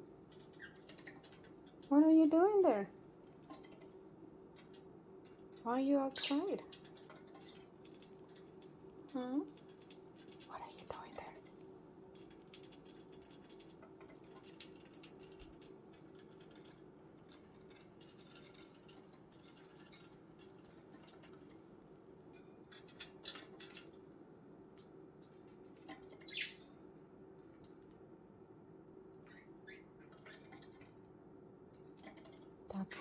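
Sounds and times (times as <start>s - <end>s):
birds scratching in cage: 0.3s - 1.8s, 6.3s - 24.1s, 29.2s - 31.0s.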